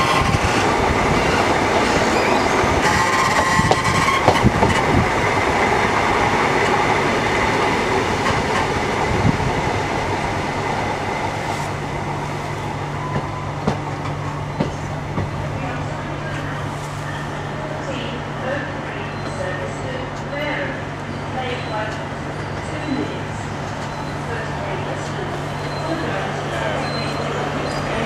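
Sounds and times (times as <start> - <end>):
train wheels on rails: 0.0 - 17.6
faint wheel squeals: 26.7 - 28.0.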